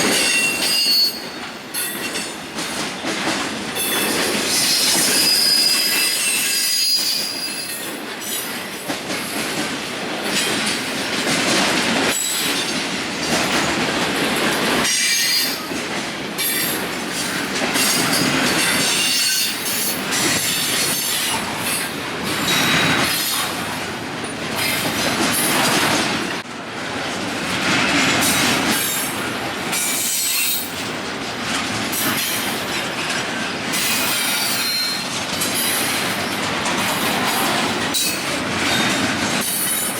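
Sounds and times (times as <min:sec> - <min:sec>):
freight train cars rolling: 0:00.0 - 0:39.9
wheels squealing and clattering: 0:03.8 - 0:08.4.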